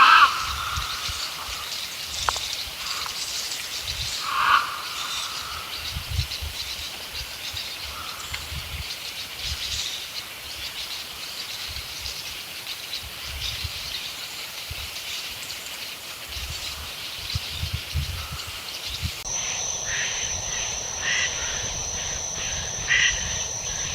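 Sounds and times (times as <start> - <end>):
birds chirping: 18.8 - 23.9.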